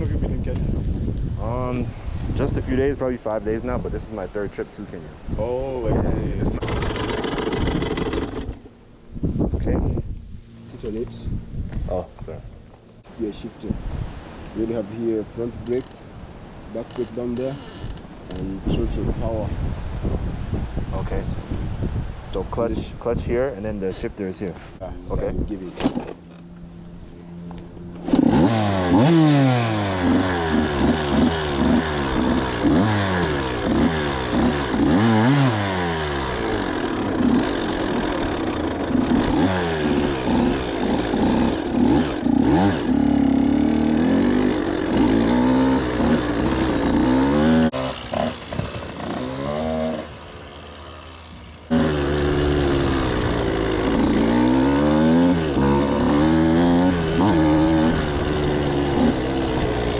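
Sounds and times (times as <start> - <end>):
dirt bike engine revving: 6.3 - 8.8, 27.9 - 59.9.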